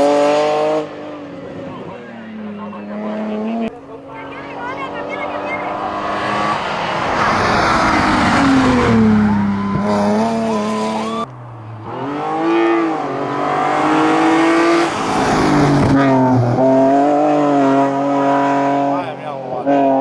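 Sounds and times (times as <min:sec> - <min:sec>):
race cars accelerating hard: 0:00.0 - 0:20.0.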